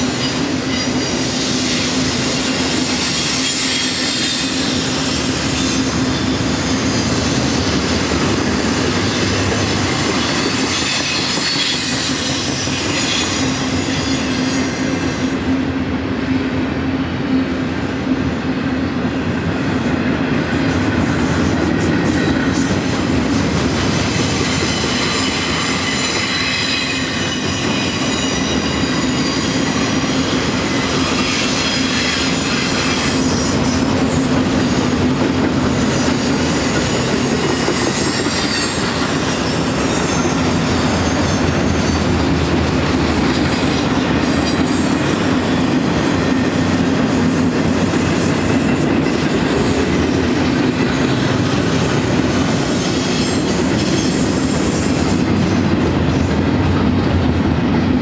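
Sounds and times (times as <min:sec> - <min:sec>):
freight train rolling past: 0:00.0 - 0:58.0
high-pitched wheel squeal: 0:00.1 - 0:07.2, 0:07.8 - 0:15.3, 0:24.1 - 0:34.3, 0:35.8 - 0:42.2, 0:52.2 - 0:55.2.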